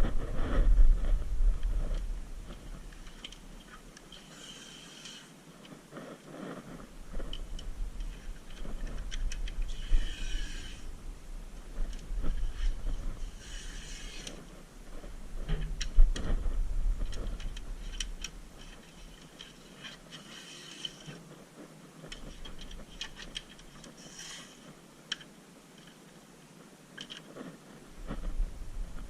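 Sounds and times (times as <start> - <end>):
low rumble: 0.0 - 2.9.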